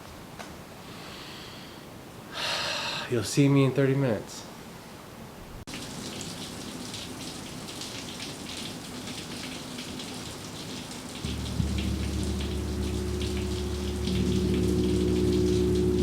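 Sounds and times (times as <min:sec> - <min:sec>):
rain pattering: 0:05.7 - 0:16.0
gong humming: 0:11.2 - 0:16.0.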